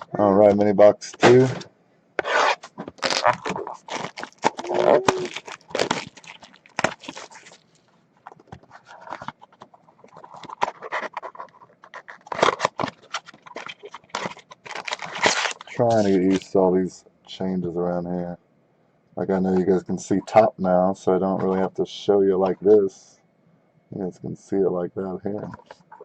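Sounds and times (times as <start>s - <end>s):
wrapping and cardboard crinkling: 2.2s - 16.6s.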